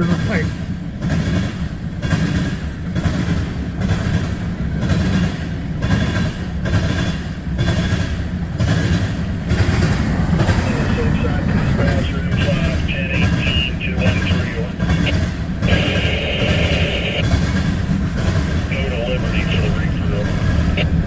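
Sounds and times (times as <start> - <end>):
freight train rolling past: 0.0 - 21.0
train wheels clacking: 0.0 - 21.0.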